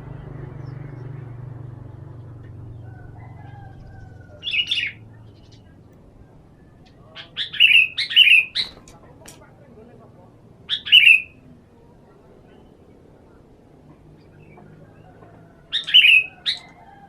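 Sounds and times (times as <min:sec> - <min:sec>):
faint whistled bird notes: 0:02.8 - 0:09.0, 0:14.2 - 0:17.0
bird chattering call: 0:04.0 - 0:05.8, 0:06.5 - 0:09.0, 0:10.7 - 0:11.4, 0:15.7 - 0:16.8.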